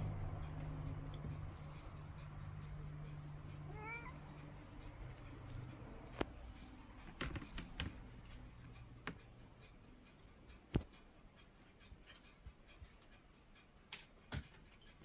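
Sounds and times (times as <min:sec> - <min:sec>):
kitten mewing: 0:03.7 - 0:04.2.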